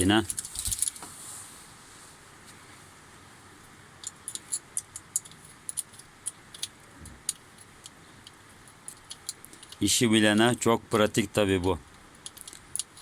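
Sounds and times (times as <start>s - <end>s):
metallic clicks of tools and parts: 4.0s - 9.8s, 11.8s - 13.0s.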